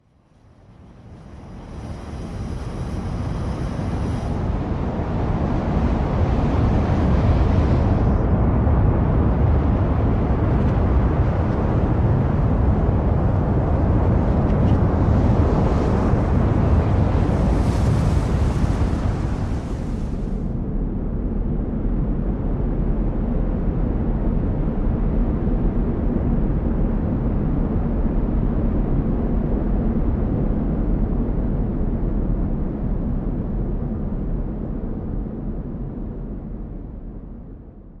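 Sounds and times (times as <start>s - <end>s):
deep rushing rumble: 1.8s - 20.6s.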